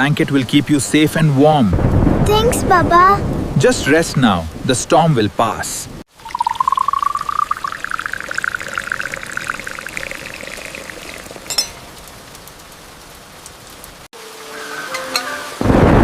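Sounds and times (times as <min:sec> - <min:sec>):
liquid pouring into a vessel: 0:06.1 - 0:11.9.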